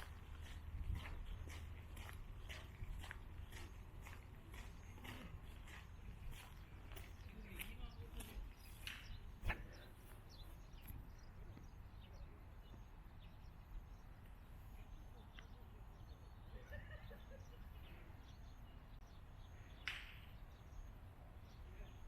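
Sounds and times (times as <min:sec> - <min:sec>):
steady low rumble: 0:00.0 - 0:12.8.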